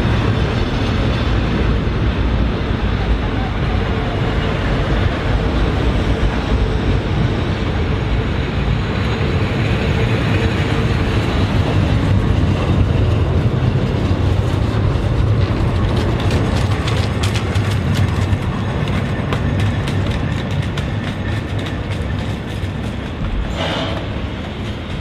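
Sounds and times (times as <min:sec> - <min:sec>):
train carriages rumbling: 0:00.0 - 0:25.0
wheels clicking over rail joints: 0:10.5 - 0:25.0.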